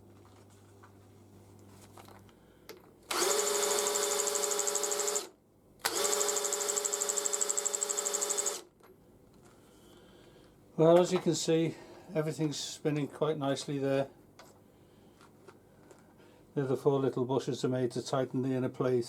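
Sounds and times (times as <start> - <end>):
power drill whine: 3.1 - 8.7.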